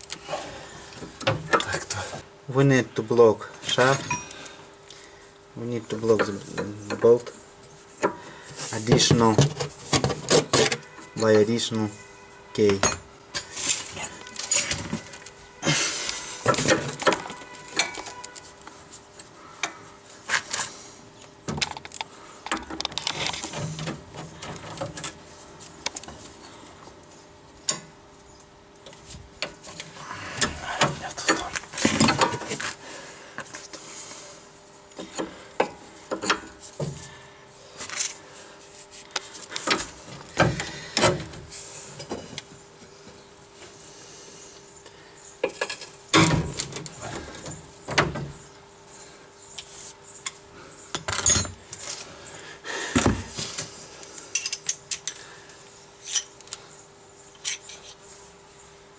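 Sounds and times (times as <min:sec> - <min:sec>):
wrenches clinking on metal: 0:54.3 - 0:55.2, 0:56.0 - 0:56.4.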